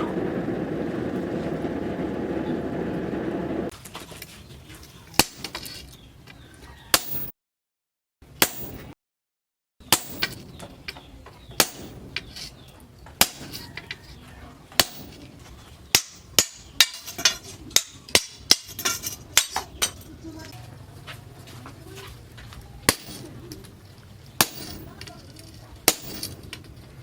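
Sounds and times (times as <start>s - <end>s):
hammer striking steel: 8.4s - 8.9s, 9.9s - 10.5s, 11.6s - 12.0s, 14.8s - 15.2s, 15.9s - 20.0s, 22.9s - 23.3s, 24.4s - 25.0s, 25.9s - 26.4s.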